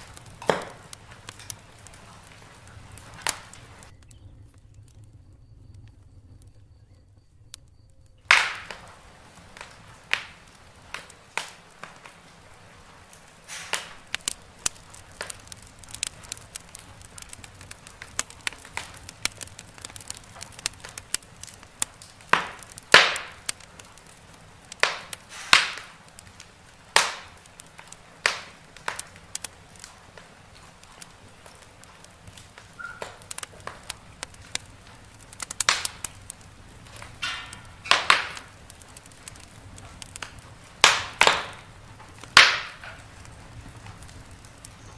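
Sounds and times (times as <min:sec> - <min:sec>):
low hum: 0:00.0 - 0:11.8
wood fire crackling and popping: 0:00.0 - 0:44.9.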